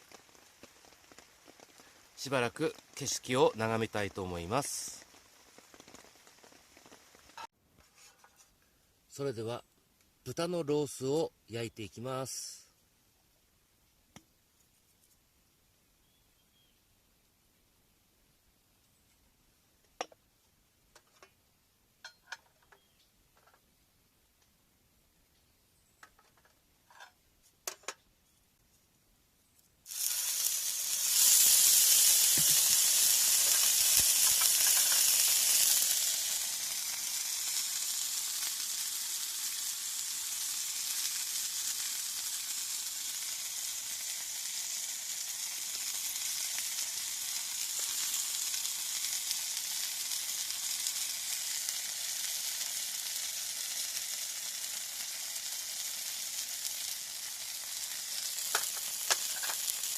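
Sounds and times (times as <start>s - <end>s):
meat sizzling in a pan: 0.0s - 7.5s, 29.8s - 59.9s.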